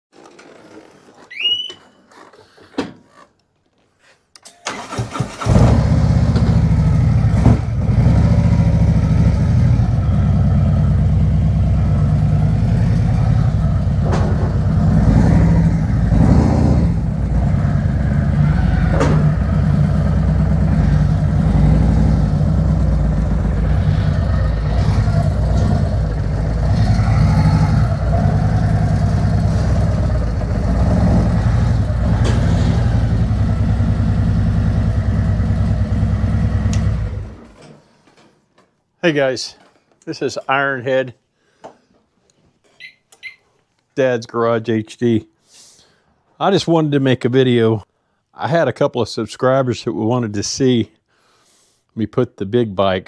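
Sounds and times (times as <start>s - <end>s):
motorcycle engine starting and running: 4.6s - 37.8s.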